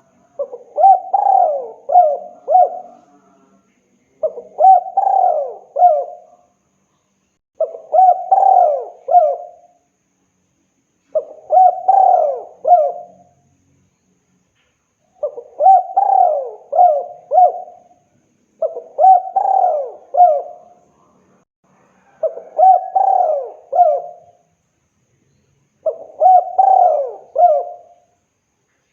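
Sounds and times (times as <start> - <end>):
dove cooing: 0.0 - 3.3, 4.2 - 6.4, 7.6 - 9.8, 11.1 - 13.3, 15.2 - 18.0, 18.6 - 20.8, 22.0 - 24.4, 25.8 - 28.1.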